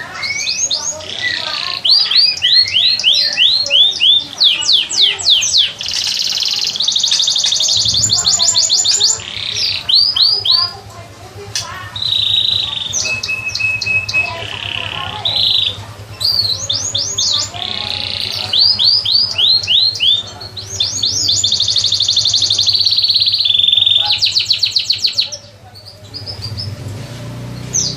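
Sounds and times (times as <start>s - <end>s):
songbird singing in trills: 0.0s - 27.9s
steady low hum: 7.6s - 12.0s.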